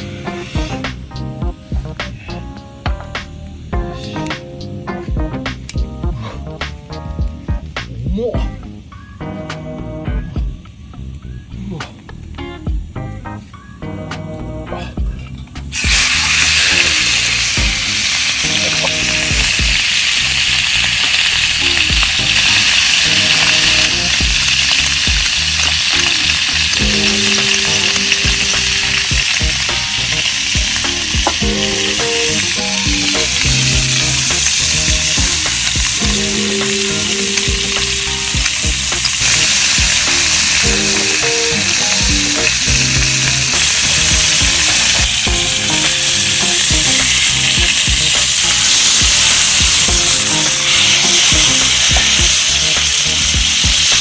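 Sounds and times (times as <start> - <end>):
meat sizzling in a pan: 15.7 - 54.0.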